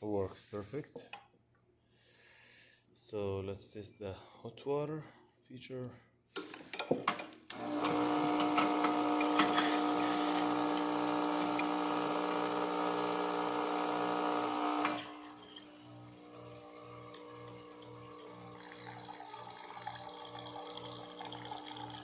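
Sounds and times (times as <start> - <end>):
espresso machine pump humming: 7.5 - 22.0.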